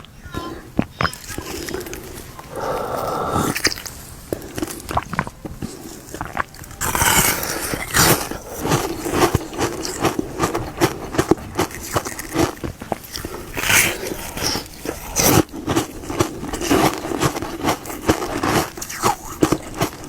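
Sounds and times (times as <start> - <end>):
crunching ice in the mouth: 0.0 - 20.0.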